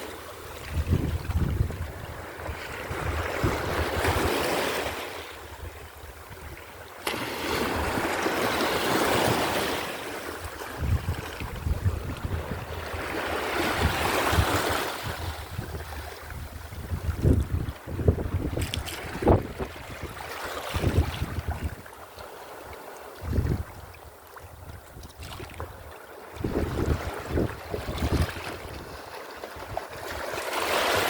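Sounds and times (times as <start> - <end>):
wind buffeting microphone: 0.6 - 4.4, 10.5 - 21.9, 23.2 - 23.9, 26.4 - 31.0
sea waves washing in: 6.9 - 23.8, 26.3 - 31.0.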